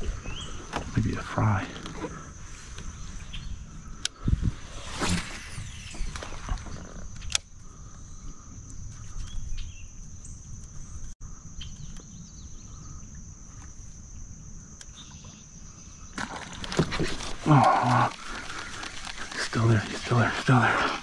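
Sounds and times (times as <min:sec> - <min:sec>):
faint bird chirps: 0:00.0 - 0:01.3, 0:02.8 - 0:16.1
high-pitched insect drone: 0:00.0 - 0:16.2.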